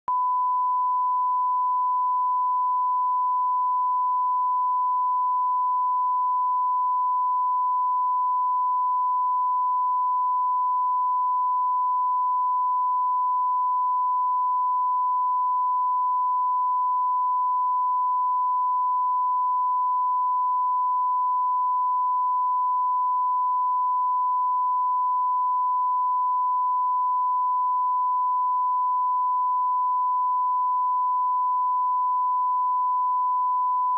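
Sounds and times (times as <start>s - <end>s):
sine test tone: 0.1s - 33.9s.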